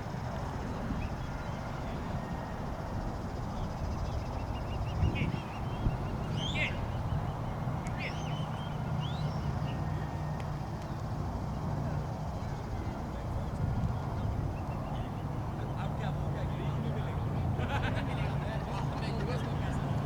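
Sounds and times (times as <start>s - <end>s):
birds chirping: 0.3s - 20.0s
birds sweeping calls: 4.2s - 10.0s.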